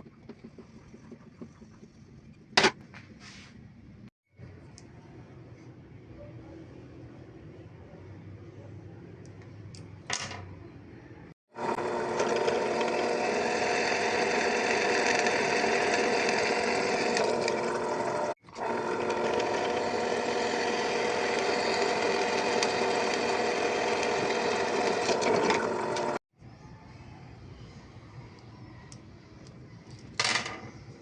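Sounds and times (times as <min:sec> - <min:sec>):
power tool motor running: 0:11.6 - 0:26.2.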